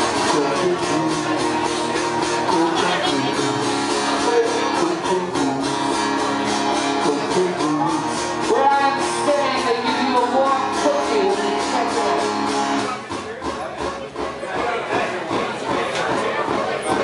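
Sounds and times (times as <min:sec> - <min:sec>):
person singing: 0:00.0 - 0:12.5
guitar strumming: 0:00.0 - 0:17.0.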